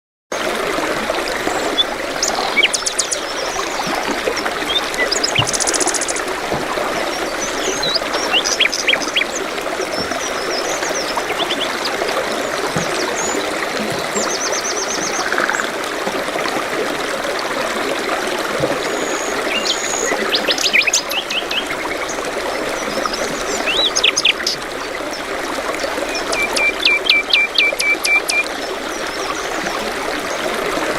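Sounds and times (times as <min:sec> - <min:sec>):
trickling running water: 0:00.3 - 0:30.9
small birds chirping and trilling: 0:04.7 - 0:06.3.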